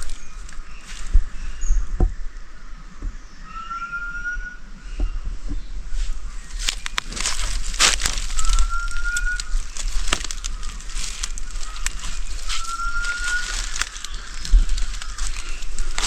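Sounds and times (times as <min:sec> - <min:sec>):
bird rising whistle call: 0:03.4 - 0:05.2, 0:08.3 - 0:09.6, 0:12.5 - 0:14.2
crackling and clicking: 0:06.5 - 0:16.0.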